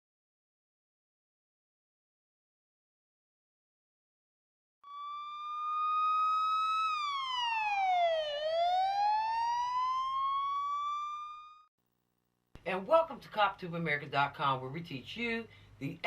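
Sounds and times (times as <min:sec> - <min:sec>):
police siren wail: 0:04.8 - 0:11.7.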